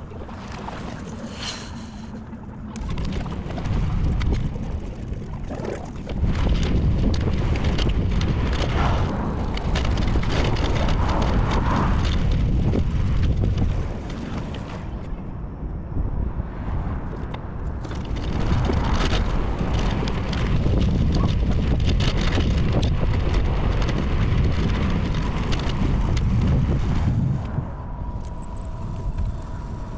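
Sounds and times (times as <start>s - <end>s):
wind buffeting microphone: 0.0s - 29.9s
road and bike rumble: 6.1s - 29.9s.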